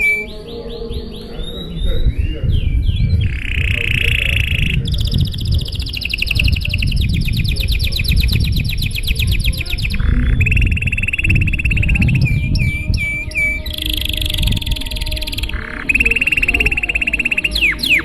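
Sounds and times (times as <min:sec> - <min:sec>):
canary singing trills: 0:00.0 - 0:18.0.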